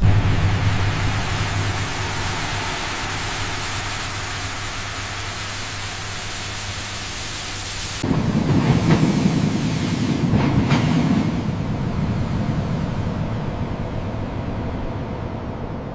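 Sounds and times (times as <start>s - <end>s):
louder low sound: 0.0s - 6.7s
low hum: 0.0s - 7.6s
steady hiss: 0.0s - 11.4s.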